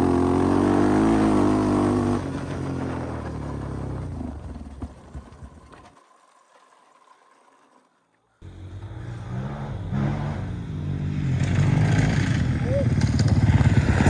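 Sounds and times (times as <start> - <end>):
off-road engine revving: 0.0 - 4.9, 8.4 - 14.0
dirt bike engine: 0.0 - 6.0, 7.4 - 14.0.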